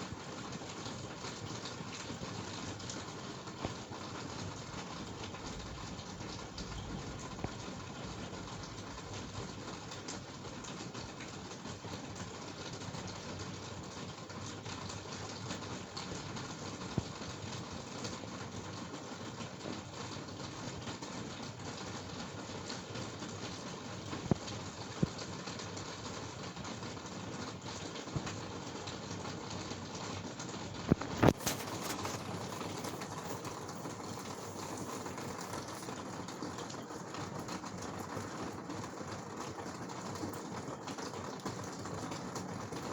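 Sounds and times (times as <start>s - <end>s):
steady rain hissing: 0.0s - 42.9s.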